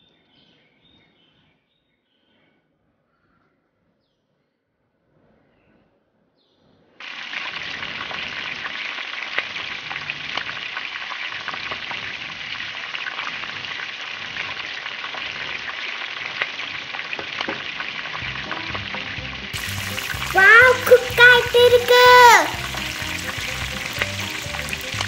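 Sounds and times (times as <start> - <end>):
skewers sizzling in a pan: 7.0 - 25.0.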